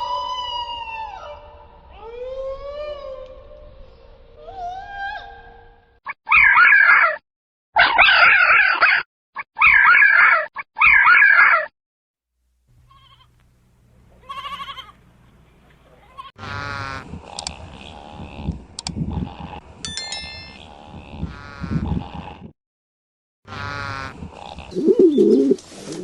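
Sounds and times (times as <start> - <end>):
sheep bleating: 12.9 - 13.3, 14.2 - 15.0.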